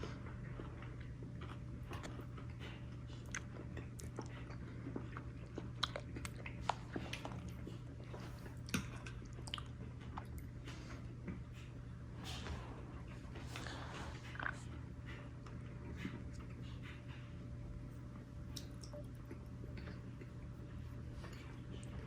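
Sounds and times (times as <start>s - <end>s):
person chewing: 0.5s - 10.6s.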